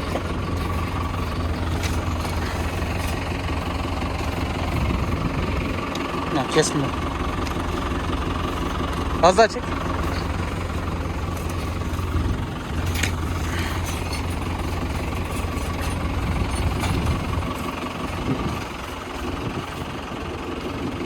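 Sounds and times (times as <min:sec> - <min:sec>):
tractor engine droning: 0:00.0 - 0:21.0.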